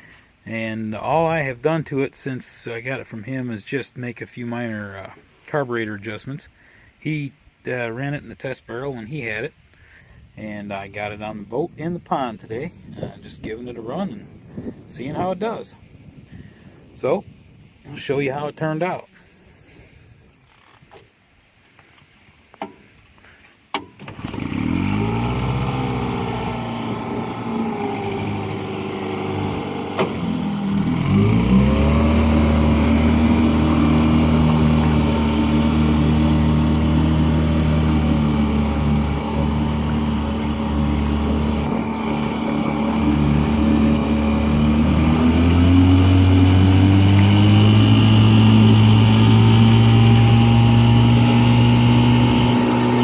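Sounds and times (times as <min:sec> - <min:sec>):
outboard motor running: 0:24.0 - 0:53.0.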